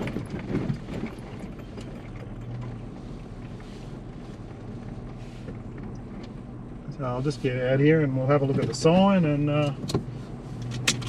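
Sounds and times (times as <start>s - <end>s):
knocks and rattles: 0.0s - 2.8s
tyre and road noise: 0.0s - 11.0s
vehicle engine running: 0.0s - 11.0s.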